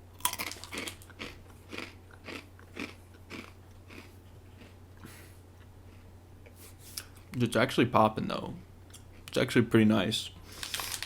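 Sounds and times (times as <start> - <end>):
low electrical hum: 0.0 - 11.0
person chewing crunchy breadsticks: 0.1 - 6.2.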